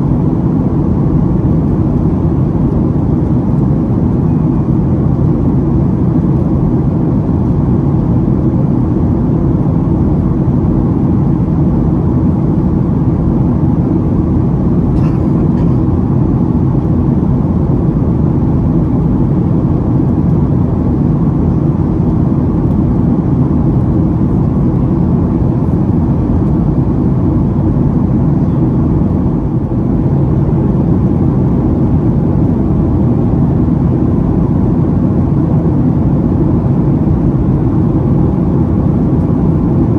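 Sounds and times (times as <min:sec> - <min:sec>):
jet engine drone: 0:00.0 - 0:39.9.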